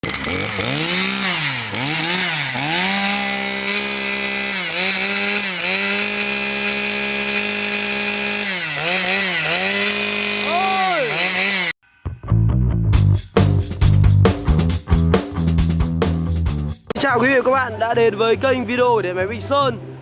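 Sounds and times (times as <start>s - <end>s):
brush cutter engine revving: 0.0s - 11.8s.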